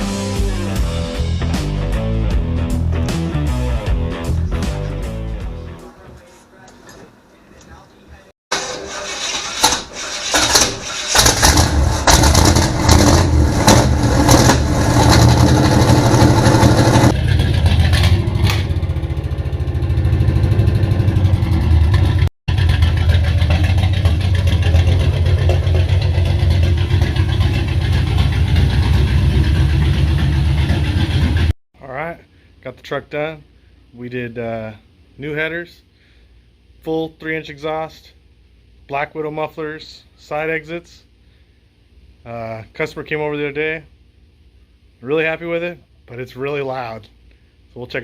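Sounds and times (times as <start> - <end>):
engine cranking clatter: 8.5 - 18.8, 21.9 - 31.5
car engine starting and revving: 8.5 - 31.5
loud engine idle: 10.0 - 31.5.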